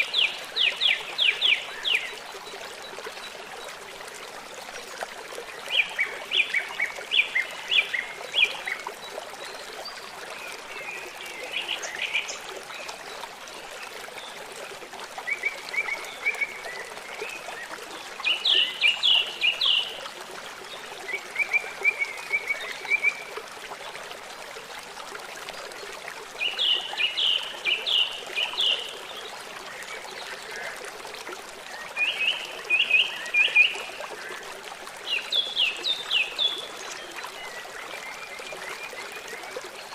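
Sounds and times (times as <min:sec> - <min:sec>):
stream running: 0:00.0 - 0:39.9
songbird singing: 0:17.6 - 0:20.0, 0:26.4 - 0:30.8, 0:35.0 - 0:39.4.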